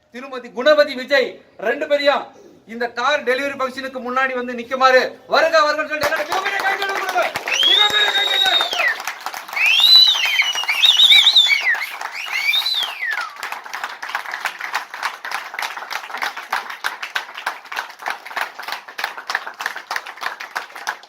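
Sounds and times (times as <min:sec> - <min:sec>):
crowd clapping: 0:06.0 - 0:21.0
shrill calls: 0:06.4 - 0:13.4.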